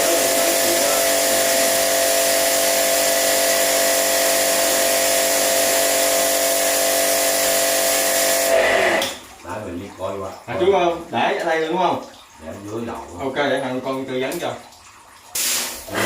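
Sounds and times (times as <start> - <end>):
electric motor humming: 0.0 - 6.8
machine hiss: 15.4 - 16.0.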